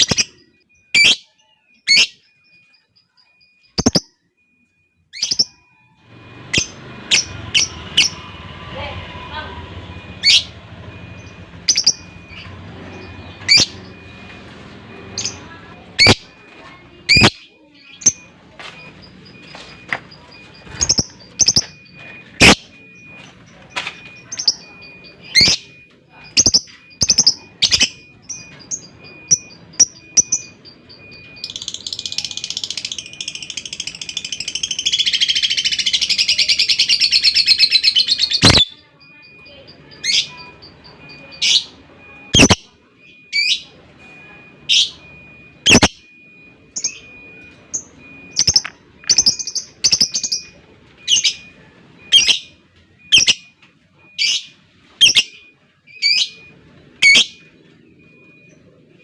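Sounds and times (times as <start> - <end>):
lovebird chirps: 0.0 - 4.2, 11.2 - 14.4, 17.0 - 38.8, 39.4 - 43.7, 44.7 - 46.0, 46.8 - 51.5, 52.1 - 53.5, 54.2 - 57.5
lovebird chattering trill: 3.8 - 4.1, 42.4 - 42.6.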